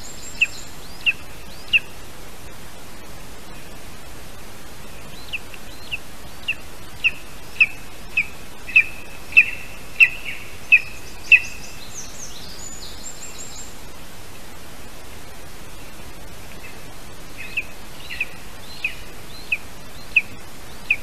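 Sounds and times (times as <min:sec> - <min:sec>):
steady hiss: 0:00.0 - 0:21.0
bird calling sharp notes: 0:05.2 - 0:12.0.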